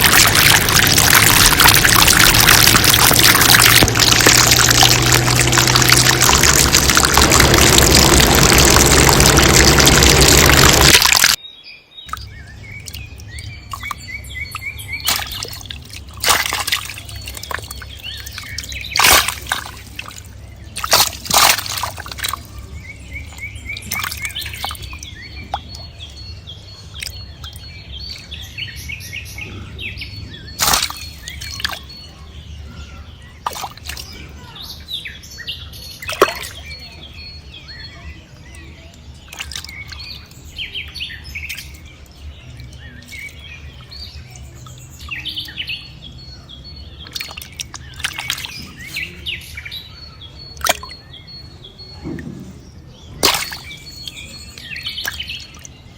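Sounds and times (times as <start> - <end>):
sharp splashes or knocks: 0.0 - 11.4, 15.0 - 22.5, 30.6 - 31.8, 36.1 - 36.7, 53.2 - 54.3
steady low hum: 0.0 - 11.4
water sloshing and splashing: 0.0 - 11.4, 12.1 - 26.2, 30.5 - 32.2, 33.3 - 34.4, 36.0 - 37.0, 39.0 - 45.2, 46.9 - 49.2, 50.5 - 51.0, 52.0 - 55.9
small birds chirping: 0.0 - 55.9.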